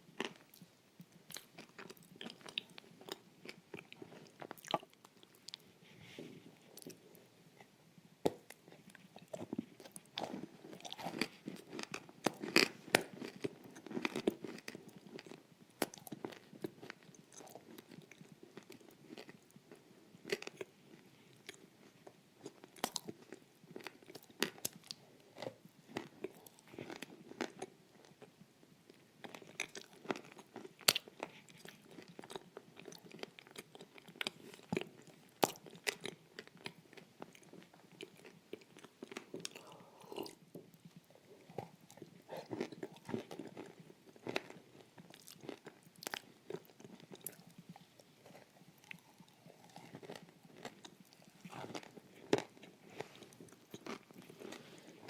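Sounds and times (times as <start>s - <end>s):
crunching food: 0.2s - 7.0s, 8.2s - 28.3s, 28.9s - 55.0s
wet chewing: 29.2s - 55.0s.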